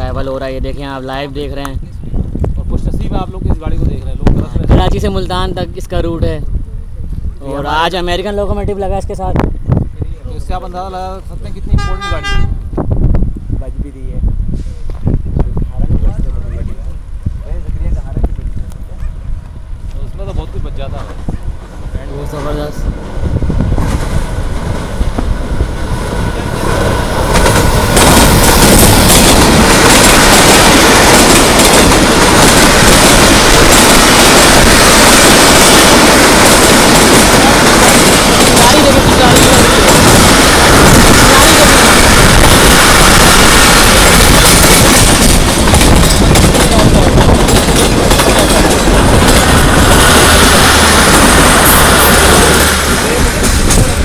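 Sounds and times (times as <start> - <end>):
train passing at speed: 10.4 - 54.0
wheel and rail noise: 14.5 - 54.0.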